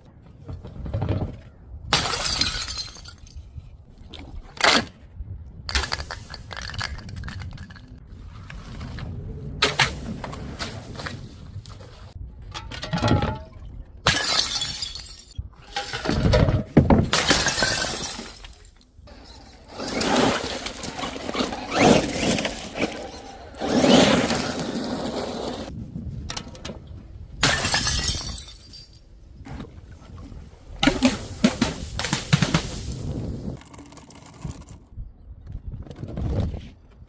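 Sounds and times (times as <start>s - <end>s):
glass bottles shattering: 1.9s - 3.5s, 14.1s - 16.3s, 17.1s - 18.8s, 27.4s - 29.0s.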